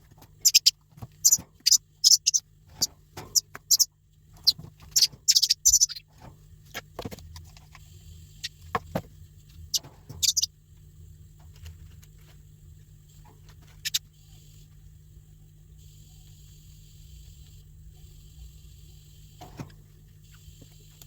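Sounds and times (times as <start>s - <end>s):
chick begging squeaks: 0.4s - 6.1s, 9.7s - 10.5s.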